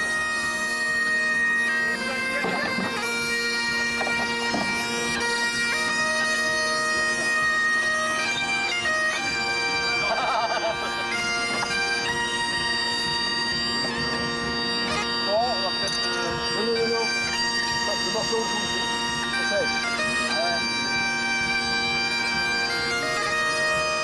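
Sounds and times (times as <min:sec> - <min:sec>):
bagpipe playing a tune: 0:00.0 - 0:24.0
bombarde: 0:00.0 - 0:24.0.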